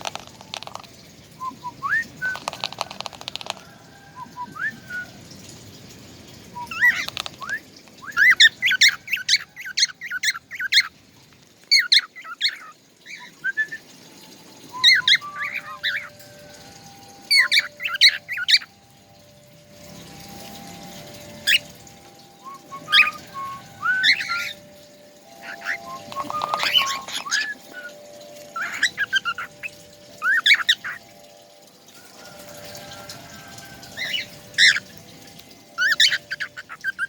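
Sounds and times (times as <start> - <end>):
songbird chirping and trilling: 0.0 - 11.0, 11.6 - 37.0
faint whistled notes: 1.4 - 2.7, 4.1 - 5.2, 13.1 - 37.0.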